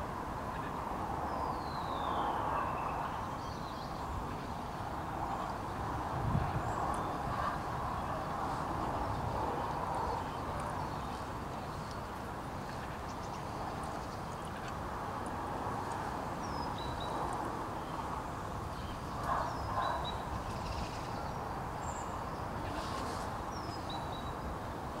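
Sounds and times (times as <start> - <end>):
outdoor background noise: 0.0 - 25.0.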